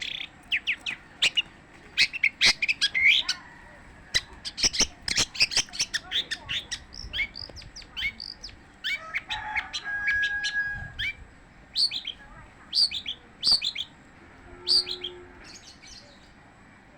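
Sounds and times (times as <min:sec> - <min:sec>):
bird chirping: 0:00.0 - 0:03.4, 0:04.1 - 0:10.2, 0:11.0 - 0:14.0, 0:14.6 - 0:16.4.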